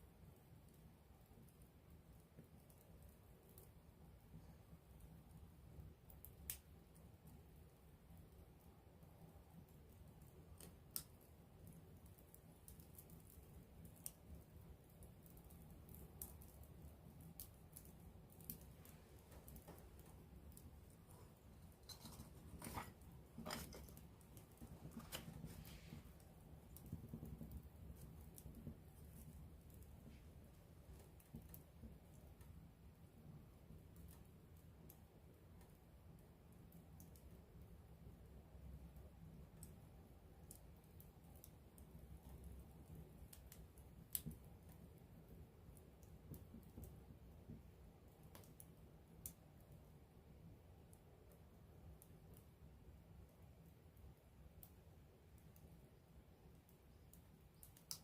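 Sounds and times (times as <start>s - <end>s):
campfire crackling: 0.1s - 58.0s
flames rustling: 0.5s - 35.8s, 53.4s - 58.0s
fire popping: 0.5s - 38.1s, 38.8s - 49.6s, 54.4s - 58.0s.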